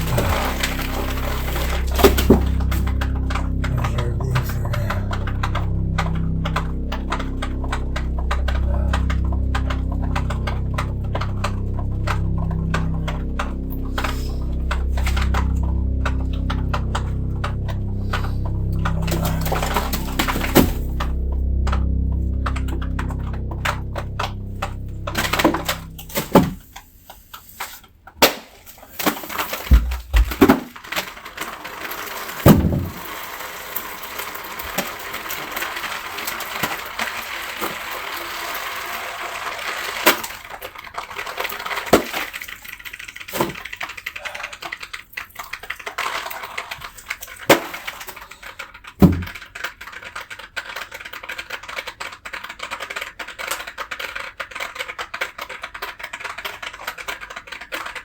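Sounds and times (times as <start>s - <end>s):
drywall cracking and knocking: 29.1s - 30.8s.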